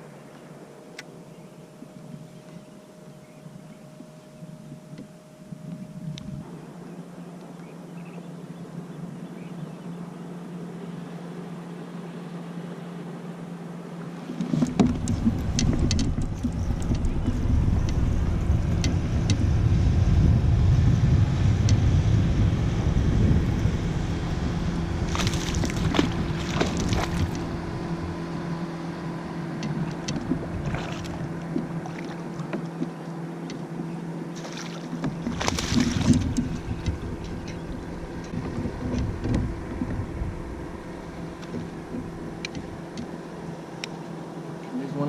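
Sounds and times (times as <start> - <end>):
steady low hum: 0.0 - 45.0
wind buffeting microphone: 14.3 - 32.9, 34.9 - 43.8
short clatters or splashes: 25.0 - 27.5, 34.4 - 40.0.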